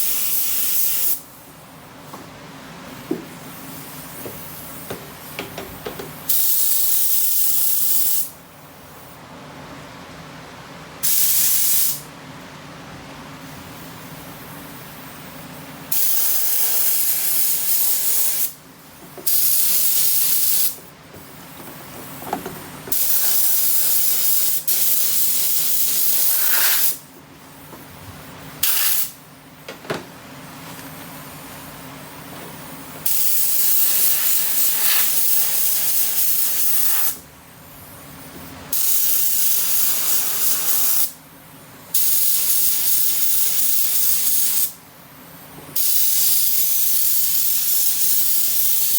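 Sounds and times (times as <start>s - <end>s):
spray gun hissing: 0.0s - 1.2s, 11.0s - 12.0s, 15.9s - 18.6s, 19.2s - 20.8s, 22.9s - 27.1s, 28.6s - 29.2s, 33.0s - 37.2s, 38.7s - 41.1s, 41.9s - 44.8s, 45.8s - 48.9s.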